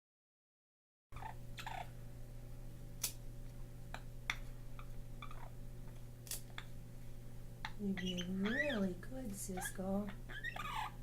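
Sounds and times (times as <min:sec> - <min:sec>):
steady low hum: 0:01.2 - 0:11.0
nail clippers snipping claws: 0:03.0 - 0:03.2, 0:06.2 - 0:06.5.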